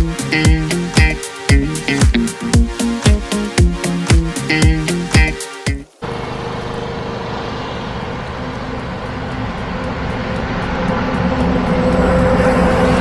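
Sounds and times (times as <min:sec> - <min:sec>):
truck engine droning: 0:05.9 - 0:13.0.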